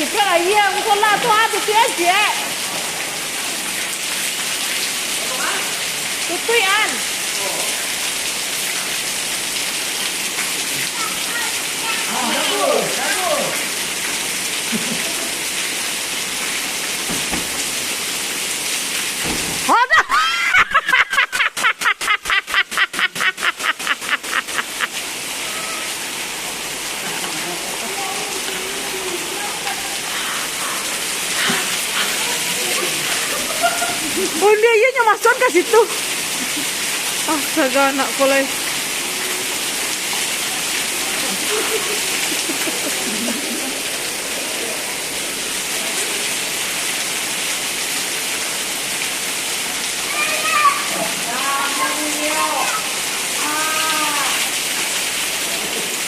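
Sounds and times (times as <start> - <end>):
heavy falling water hissing: 0.0 - 56.0
steady rain: 0.0 - 56.0
rapid laughter: 20.0 - 24.9, 41.2 - 43.8.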